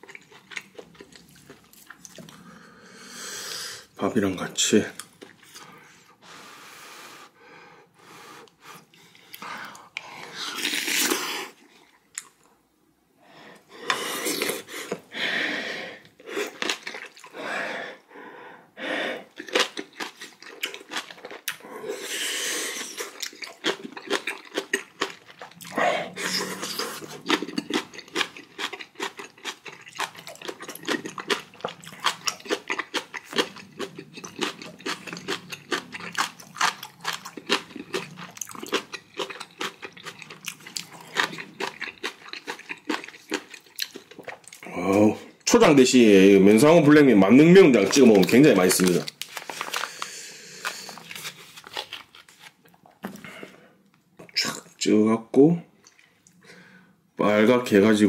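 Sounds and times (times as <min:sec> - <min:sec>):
close chewing with wet clicks: 0:00.0 - 0:02.4, 0:16.6 - 0:17.3, 0:19.3 - 0:21.6, 0:23.0 - 0:25.7, 0:26.7 - 0:44.6.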